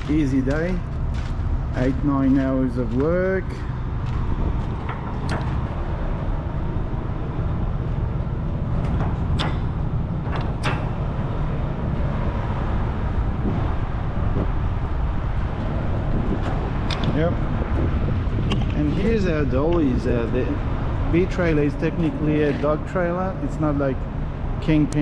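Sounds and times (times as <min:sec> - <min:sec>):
diesel engine rumbling: 0:00.0 - 0:25.0
sharp clicks and knocks: 0:04.0 - 0:05.9, 0:08.8 - 0:12.2, 0:16.4 - 0:17.2, 0:18.4 - 0:18.8.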